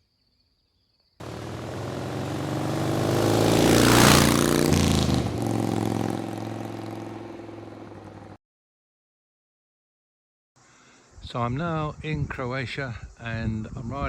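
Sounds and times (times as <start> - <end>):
vehicle engine passing by: 1.2 - 8.4.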